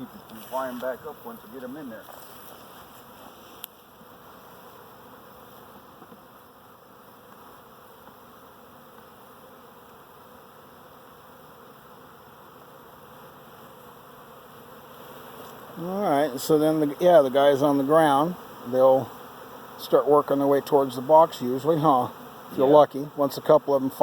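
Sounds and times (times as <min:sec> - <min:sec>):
bee swarm buzzing: 0:00.0 - 0:24.0.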